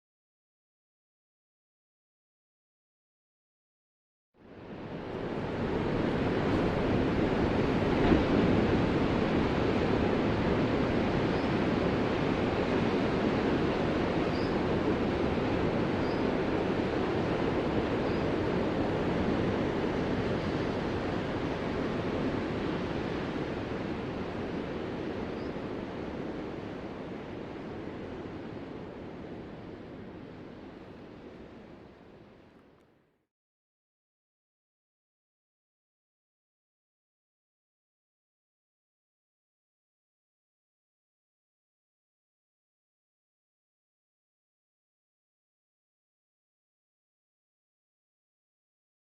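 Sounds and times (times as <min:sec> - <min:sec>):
ocean waves washing on shore: 0:04.5 - 0:32.4.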